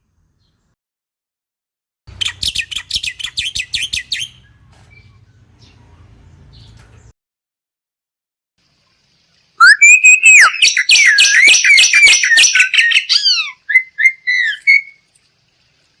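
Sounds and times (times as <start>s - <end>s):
myna whistling and singing: 9.6s - 15.0s.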